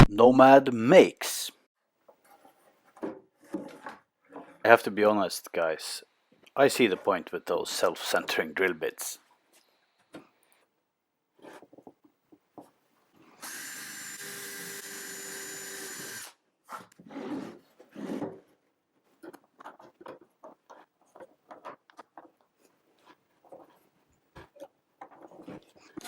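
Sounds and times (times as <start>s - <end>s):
power drill drilling: 13.4s - 16.4s
handling knocks and clicks: 19.2s - 26.0s.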